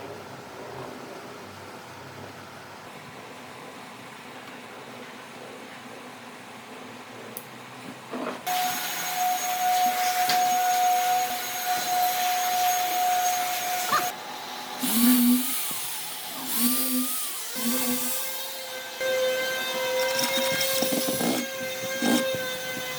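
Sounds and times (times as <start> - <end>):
small electric motor whining: 8.5 - 22.9.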